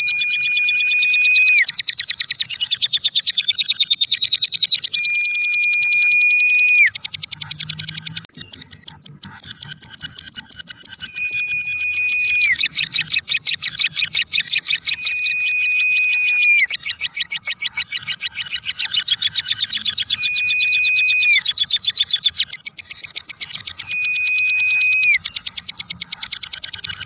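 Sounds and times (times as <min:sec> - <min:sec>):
whistle-like tone dropping in pitch: 0:00.0 - 0:01.7, 0:04.9 - 0:06.9, 0:11.0 - 0:12.7, 0:14.8 - 0:16.7, 0:20.1 - 0:21.4, 0:23.8 - 0:25.2
lovebird rapid high chirps: 0:00.0 - 0:27.0.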